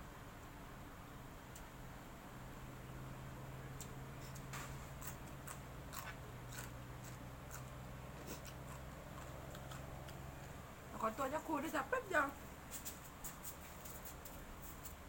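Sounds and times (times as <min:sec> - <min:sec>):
steady low hum: 0:00.0 - 0:15.0
chewing crunches and clicks: 0:03.8 - 0:10.6.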